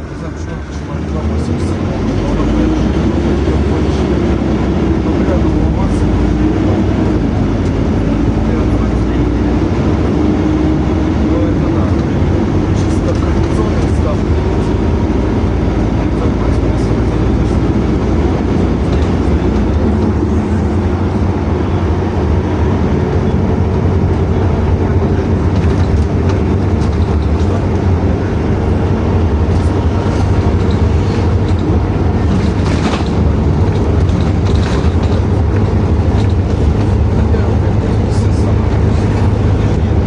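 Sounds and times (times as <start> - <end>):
bus engine drone: 0.0 - 40.0
road noise: 0.0 - 40.0
light rattles: 23.0 - 40.0.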